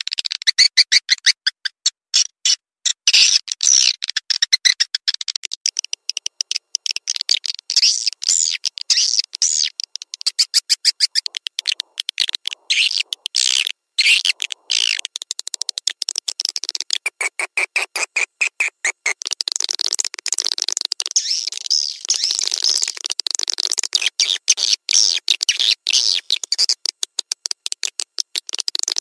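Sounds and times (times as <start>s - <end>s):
swiftlet chirps and twitters: 5.6s - 23.0s.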